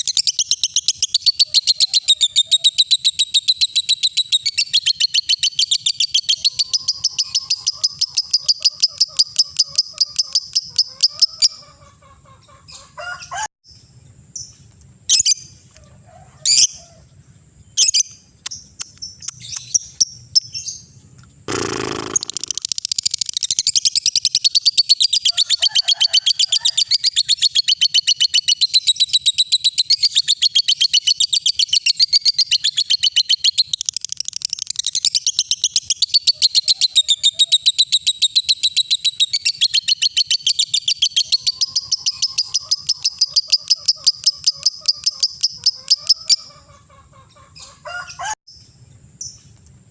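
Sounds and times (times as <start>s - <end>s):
lovebird chirping: 0.0s - 11.6s, 17.6s - 25.4s, 27.0s - 46.8s.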